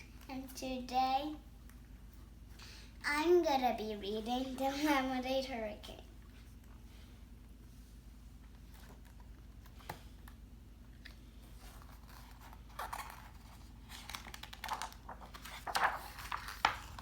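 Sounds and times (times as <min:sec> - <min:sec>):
faint low hum: 0:00.0 - 0:17.0
book pages turning and rustling: 0:11.0 - 0:17.0.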